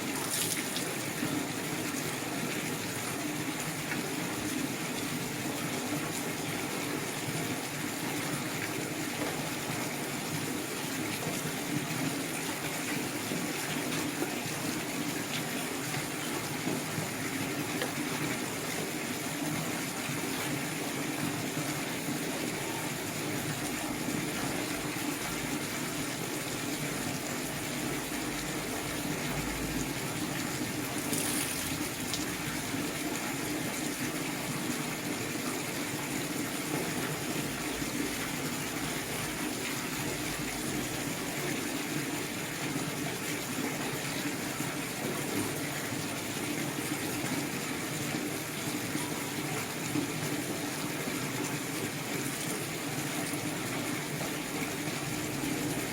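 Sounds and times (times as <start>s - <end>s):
running water rushing: 0.0s - 55.9s.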